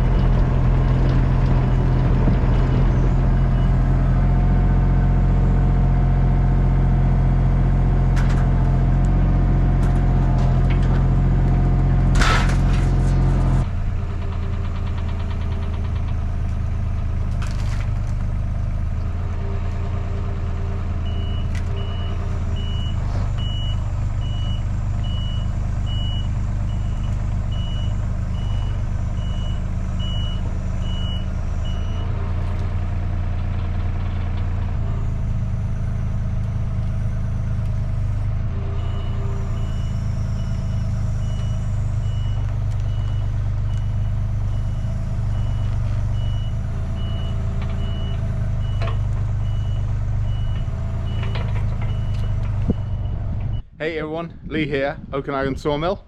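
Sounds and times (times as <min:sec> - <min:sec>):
heavy machine engine running: 0:00.0 - 0:53.8
reversing alarm beeping: 0:20.3 - 0:32.9, 0:34.7 - 0:53.7.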